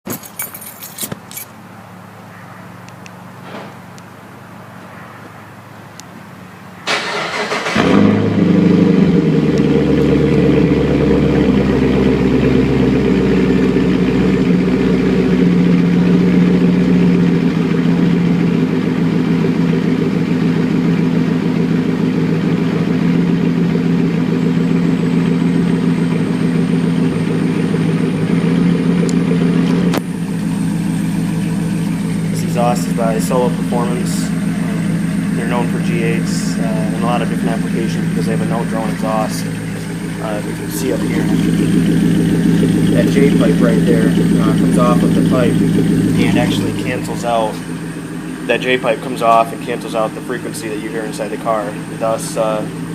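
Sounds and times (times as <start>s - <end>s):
car engine loud idle: 6.8s - 52.9s
engine cranking: 6.9s - 8.8s.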